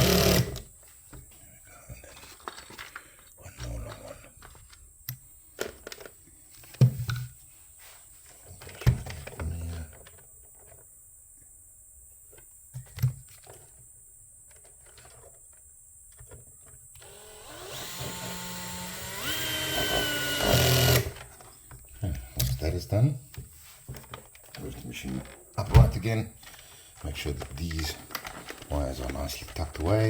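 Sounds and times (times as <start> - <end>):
drill-driver whining: 0.0 - 0.7, 17.0 - 21.3
clicks and knocks of handling parts: 2.1 - 7.4.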